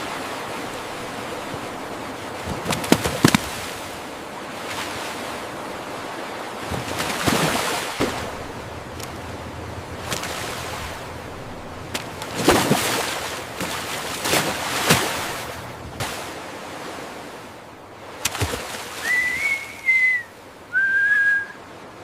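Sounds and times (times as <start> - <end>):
sharp water splashes: 0.0 - 21.4
sea water rushing in wake: 0.0 - 22.0.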